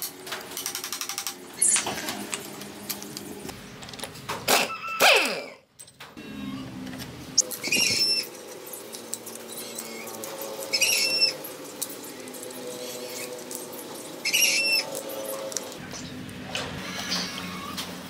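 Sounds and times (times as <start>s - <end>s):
high-pitched squeak: 7.4s - 8.3s, 10.7s - 11.5s, 14.2s - 15.0s.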